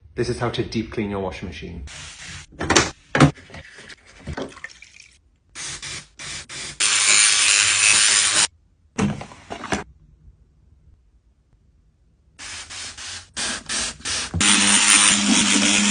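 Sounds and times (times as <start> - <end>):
spraying hiss: 12.4 - 14.4.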